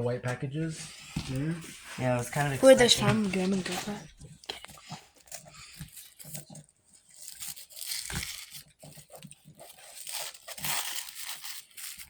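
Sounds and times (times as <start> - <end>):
package wrapping tearing and crinkling: 2.4 - 12.0.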